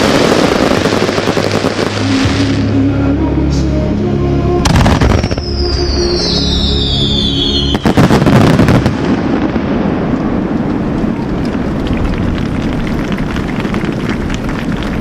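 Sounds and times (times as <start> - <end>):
fireworks bursting: 0.0 - 2.8, 4.7 - 15.0
rumble of small pops and bangs: 8.0 - 15.0.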